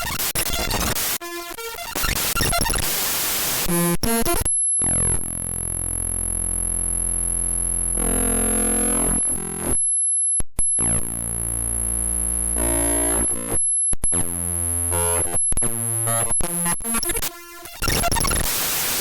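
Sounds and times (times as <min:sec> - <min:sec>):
harsh buzzy drone of tones: 0:04.8 - 0:09.7, 0:10.8 - 0:13.5.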